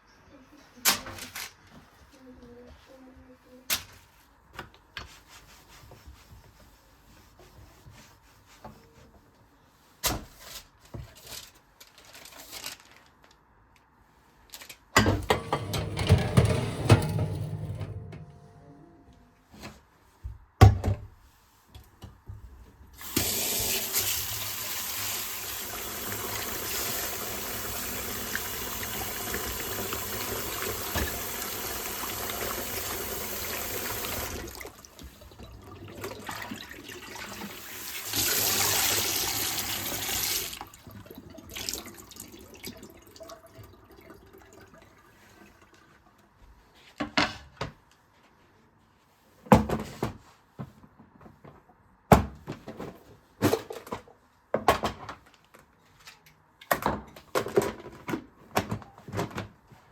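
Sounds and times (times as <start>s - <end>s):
tap running into a sink: 28.0s - 34.6s.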